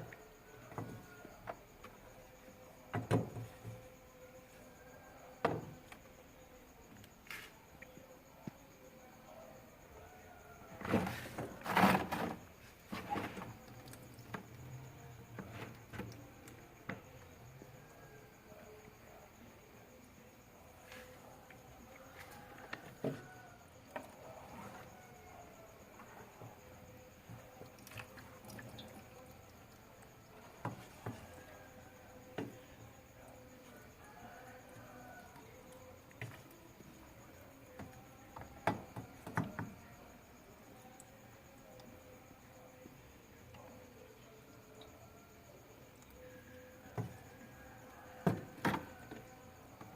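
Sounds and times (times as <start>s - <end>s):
water dripping: 27.6s - 29.8s.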